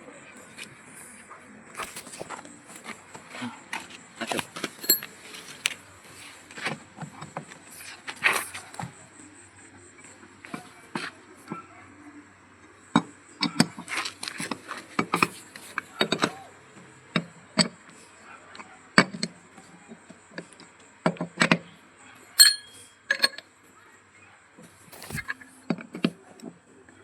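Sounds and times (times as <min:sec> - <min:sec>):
ringing metallic clink: 0:04.8 - 0:05.1, 0:22.4 - 0:23.4
hand tools knocking on metal: 0:22.4 - 0:22.8.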